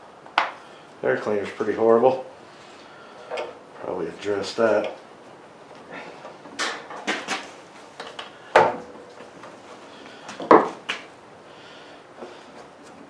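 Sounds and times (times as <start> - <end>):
lawnmower parts clunking: 3.2 - 5.1, 5.7 - 9.6, 10.2 - 11.0.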